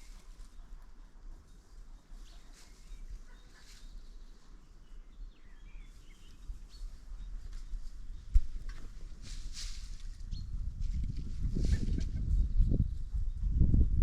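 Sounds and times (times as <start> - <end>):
faint bird chirps: 0.0 - 8.6
wind rumble on microphone: 5.4 - 14.0.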